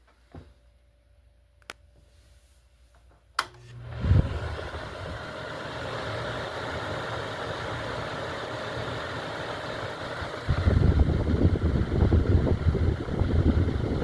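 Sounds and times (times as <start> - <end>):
box fan running: 3.4 - 14.0.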